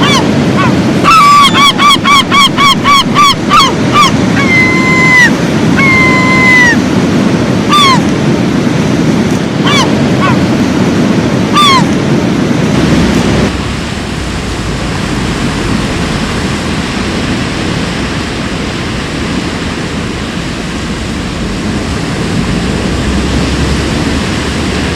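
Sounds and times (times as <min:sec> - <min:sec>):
water birds calling: 0:00.0 - 0:08.2, 0:09.6 - 0:10.6, 0:11.5 - 0:11.9, 0:12.7 - 0:24.9
surf breaking: 0:12.6 - 0:24.9.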